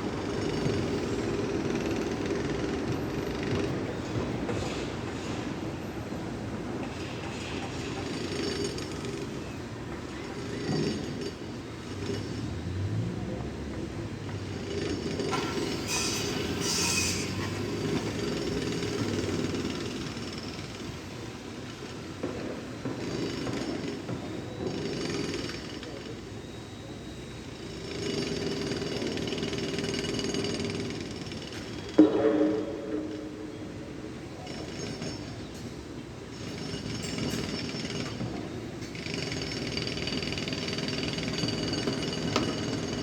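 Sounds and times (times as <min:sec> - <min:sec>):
construction machinery running: 0:00.0 - 0:43.0
harsh high-pitched machine noise: 0:15.3 - 0:20.6.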